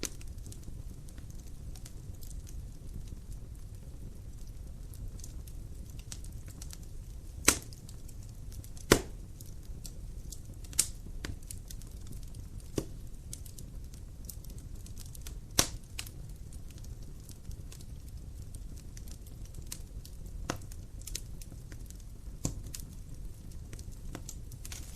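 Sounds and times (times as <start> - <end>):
fire popping loudly: 0.0 - 24.9
wood fire crackling: 0.0 - 24.9.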